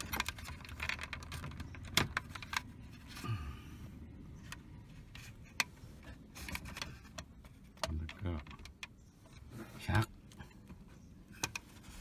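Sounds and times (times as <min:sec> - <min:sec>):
light handling noise: 0:04.0 - 0:12.0.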